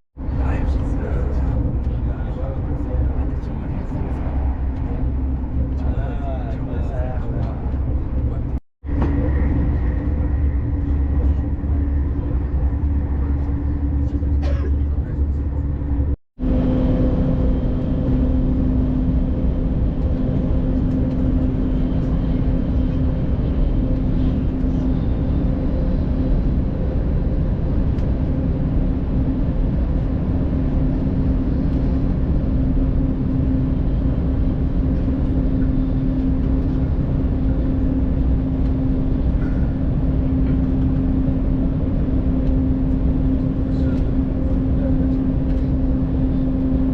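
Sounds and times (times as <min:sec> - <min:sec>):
constant low tone: 0:00.2 - 0:46.9
train cabin rumble and hum: 0:00.2 - 0:46.9.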